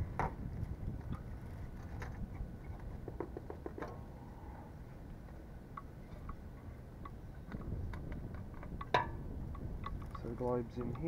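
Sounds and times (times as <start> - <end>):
wind rumble on microphone: 0.0 - 11.0
metal parts clicking and tapping: 8.6 - 11.0.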